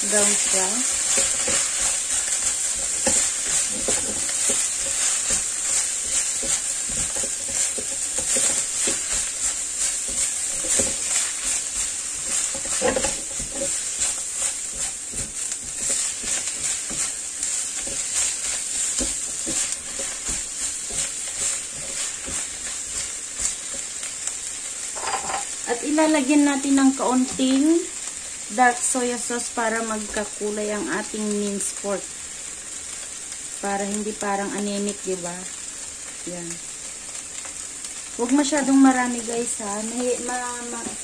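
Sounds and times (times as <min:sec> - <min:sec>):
spatula scraping a pan: 0:00.0 - 0:24.3, 0:24.9 - 0:25.6
meat sizzling in a wok: 0:00.0 - 0:41.0.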